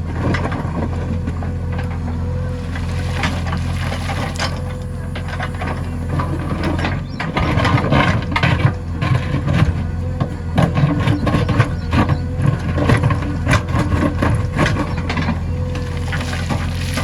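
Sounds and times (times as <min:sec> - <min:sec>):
diesel engine running: 0:00.0 - 0:17.0
machine clanks and knocks: 0:04.0 - 0:16.8.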